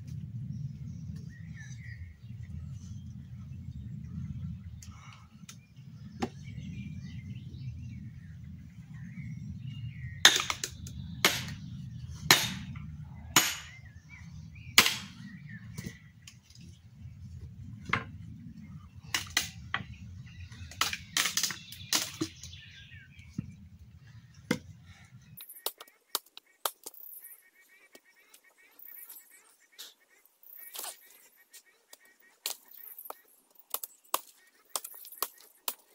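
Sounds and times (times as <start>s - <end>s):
low rumble: 0.0s - 25.4s
hammer striking nails: 10.3s - 11.6s, 13.4s - 13.7s, 14.8s - 15.1s.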